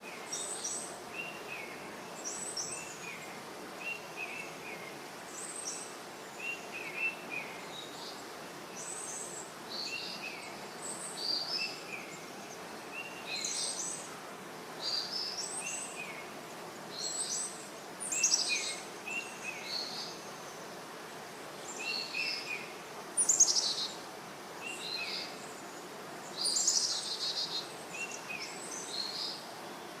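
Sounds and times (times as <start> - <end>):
songbirds chirping: 0.0 - 30.0
steady background hiss: 0.0 - 30.0.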